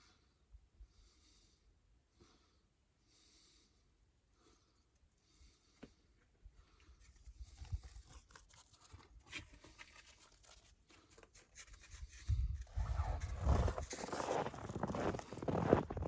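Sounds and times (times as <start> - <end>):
rustling: 7.0 - 16.0
crunching footsteps: 12.6 - 16.0.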